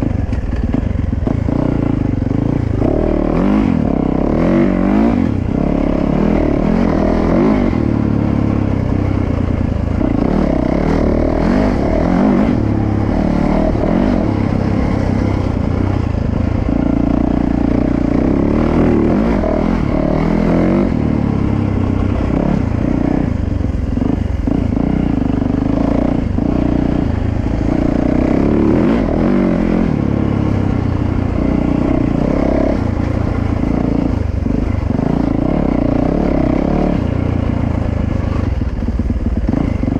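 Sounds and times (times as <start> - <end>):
dirt bike engine running hard: 0.0 - 39.9.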